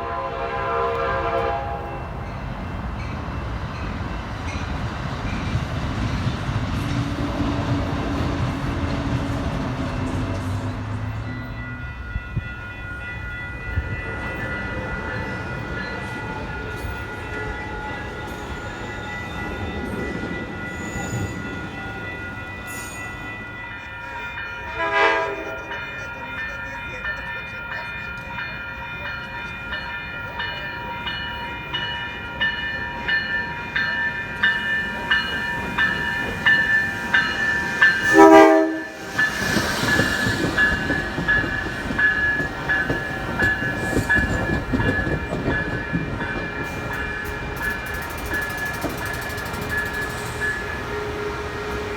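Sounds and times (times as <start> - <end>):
train horn blasts: 0.0 - 2.4, 24.7 - 25.8, 37.7 - 39.8, 49.5 - 51.9
high ringing rail tones: 0.0 - 51.9
train wheels clattering on rails: 0.9 - 51.9.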